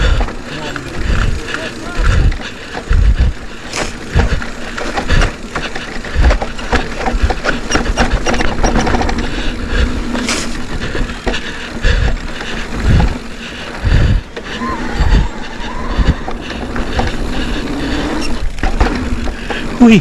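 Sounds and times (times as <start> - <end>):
mountain bike rattling on trail: 0.0 - 20.0
deep thumps: 4.0 - 5.4, 11.9 - 14.3.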